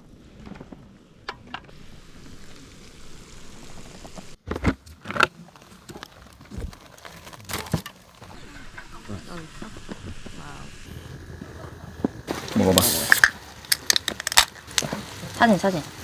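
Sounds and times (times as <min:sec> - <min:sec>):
food sizzling and crackling: 0:10.8 - 0:16.0.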